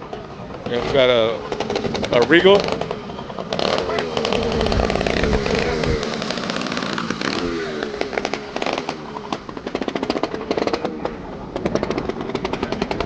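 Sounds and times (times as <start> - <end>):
engine with popping exhaust: 0.0 - 13.0
people chattering: 0.0 - 13.0.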